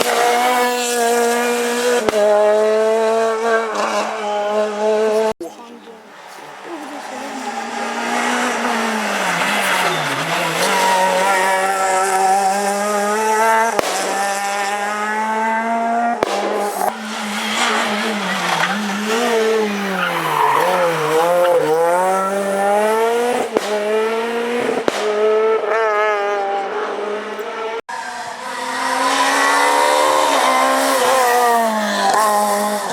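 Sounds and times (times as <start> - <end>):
rally car engine revving hard: 0.0 - 5.4, 7.0 - 32.9
sharp cracks: 13.7 - 14.6, 16.2 - 17.0, 23.5 - 23.9, 24.7 - 25.2.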